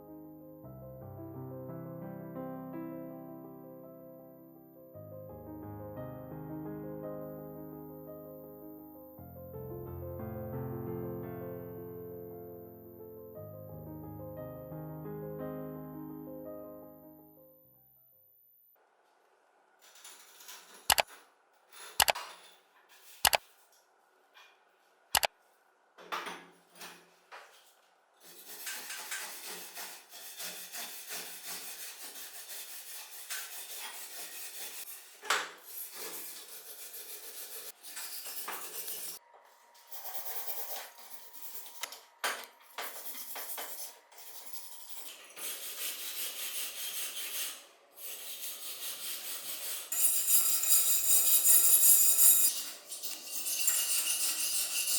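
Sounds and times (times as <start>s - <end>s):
scraping and rubbing metal: 42.8s - 54.9s.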